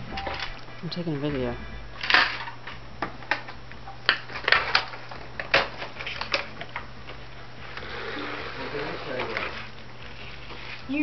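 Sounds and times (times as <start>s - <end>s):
cardboard packaging being handled: 7.6s - 11.0s.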